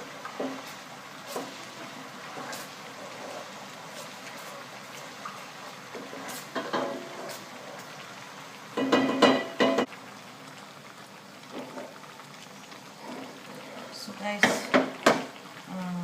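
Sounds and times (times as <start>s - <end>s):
utensil stirring and clattering: 0.0s - 8.0s, 8.8s - 9.9s
curry simmering in a pot: 0.0s - 16.0s.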